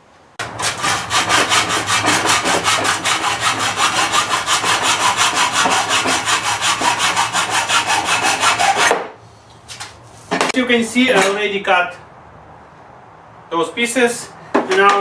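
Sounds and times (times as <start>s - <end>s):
hacksaw cutting metal: 0.4s - 9.1s.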